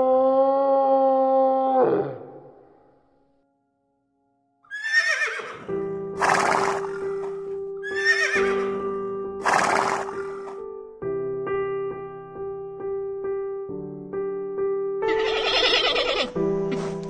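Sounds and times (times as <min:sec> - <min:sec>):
horse whinnying: 0:04.7 - 0:10.6, 0:15.1 - 0:17.0
soft piano music: 0:05.6 - 0:17.0.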